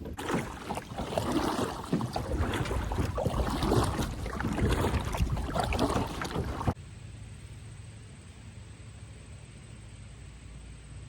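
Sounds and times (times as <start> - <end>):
paddle splashing in water: 0.0 - 6.8
wind rumbling on microphone: 0.0 - 6.8.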